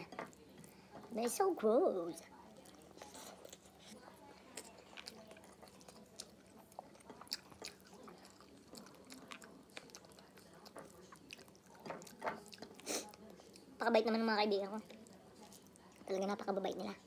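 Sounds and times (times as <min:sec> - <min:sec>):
person chewing food: 0:02.5 - 0:13.8.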